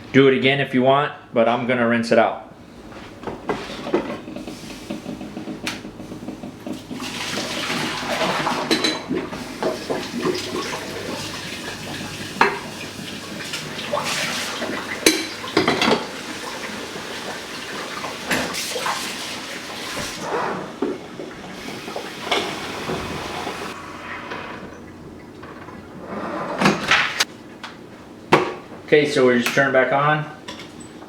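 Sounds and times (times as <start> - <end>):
tap water running into sink: 6.4 - 20.2, 20.8 - 23.8
pot clinking against sink: 14.7 - 16.1.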